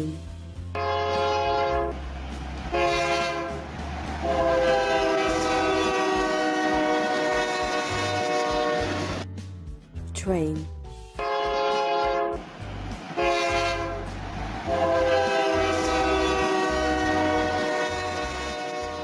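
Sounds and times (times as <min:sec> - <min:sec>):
train horn blasts: 0:00.7 - 0:02.0, 0:02.7 - 0:09.2, 0:11.2 - 0:12.5, 0:13.2 - 0:19.0.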